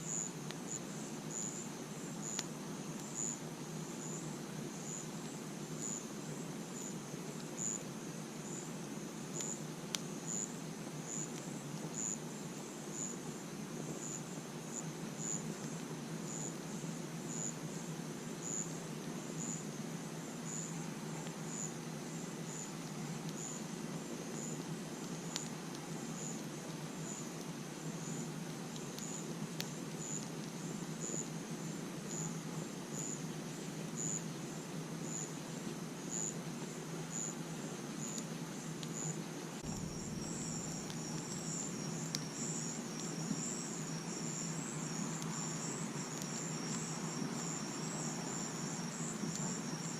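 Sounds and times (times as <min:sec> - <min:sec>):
continuous insect trill: 0:00.0 - 0:49.9
crickets chirping: 0:00.0 - 0:49.9
fire crackles: 0:00.1 - 0:49.9
campfire rushing: 0:39.5 - 0:47.6.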